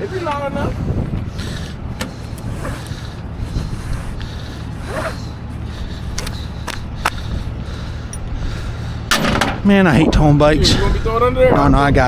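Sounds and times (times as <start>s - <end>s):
vehicle engine idling: 0.0s - 9.1s.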